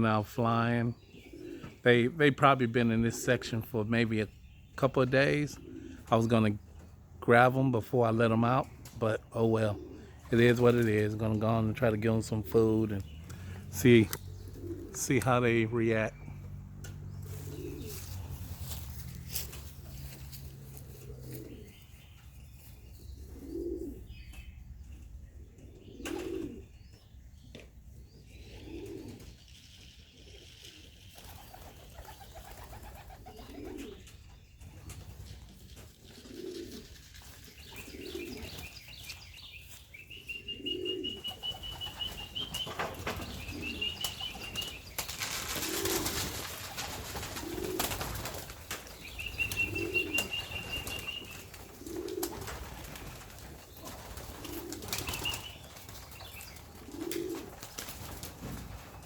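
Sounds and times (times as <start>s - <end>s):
pigeons cooing: 0.0s - 7.1s, 7.8s - 59.0s
wing flapping: 31.1s - 33.9s, 41.3s - 59.0s.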